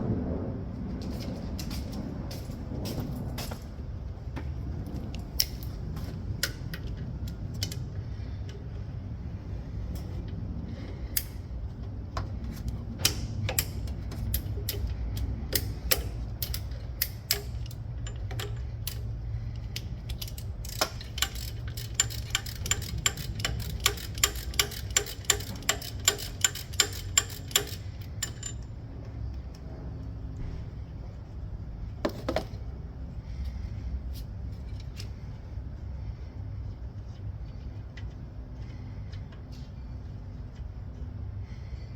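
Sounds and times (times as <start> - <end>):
steady low hum: 0.0 - 41.9
ratchet wrench clicking: 13.0 - 28.7.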